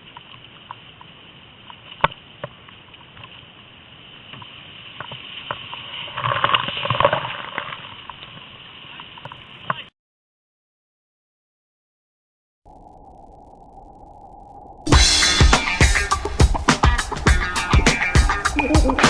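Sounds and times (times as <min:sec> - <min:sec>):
voices: 0:14.9 - 0:19.0.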